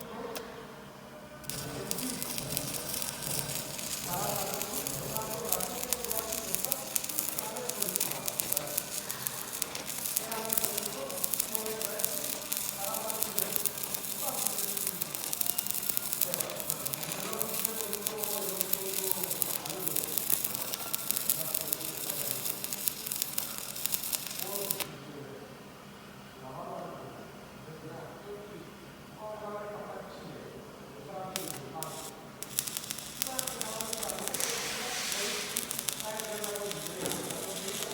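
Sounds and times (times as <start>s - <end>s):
welding arc crackling and sizzling: 1.4s - 24.9s, 31.3s - 37.9s.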